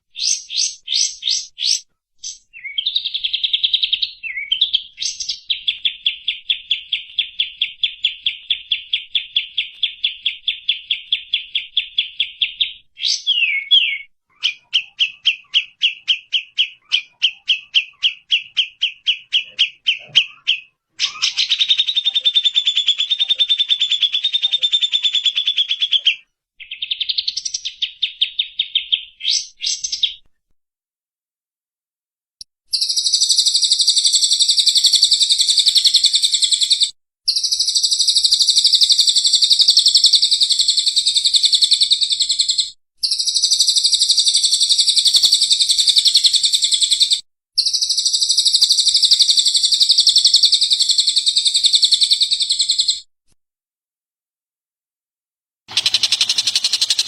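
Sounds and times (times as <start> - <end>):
bird repeated sharp notes: 0.1 - 30.2, 32.7 - 53.0, 55.7 - 57.0
bird trill: 0.1 - 30.2, 32.7 - 53.1, 55.7 - 57.0
higher buzzy bird trill: 55.7 - 57.0.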